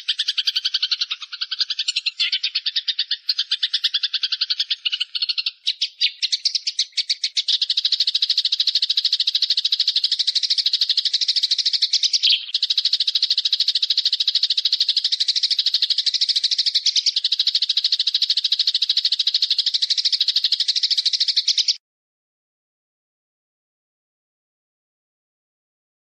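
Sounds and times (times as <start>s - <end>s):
bird trilling: 0.0s - 21.8s.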